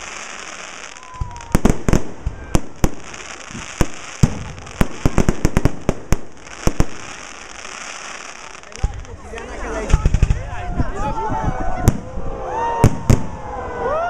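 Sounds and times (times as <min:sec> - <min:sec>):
fireworks sharp bangs: 0:00.0 - 0:09.2, 0:12.8 - 0:13.4
fireworks crackling: 0:00.0 - 0:13.5.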